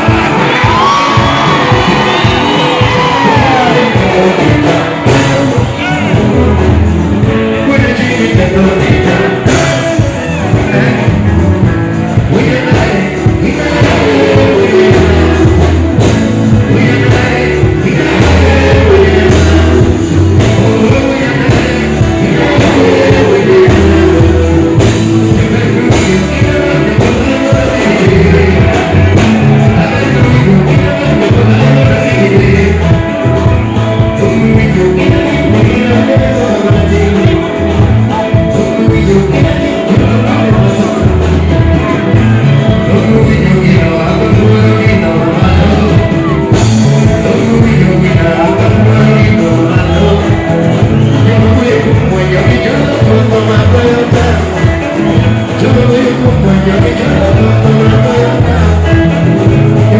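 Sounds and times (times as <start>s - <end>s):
distorted live band music: 0.0s - 59.9s
person singing: 0.0s - 59.9s.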